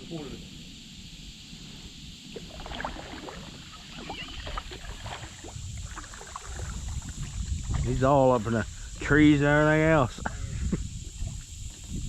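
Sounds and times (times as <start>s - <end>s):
water splashing around kayak: 2.2s - 8.4s.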